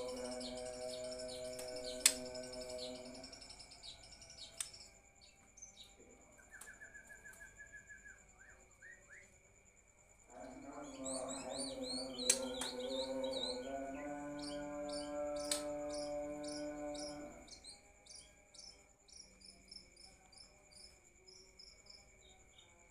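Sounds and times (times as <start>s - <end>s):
low held musical tones: 0.0s - 5.4s
songbirds chirping: 0.0s - 22.9s.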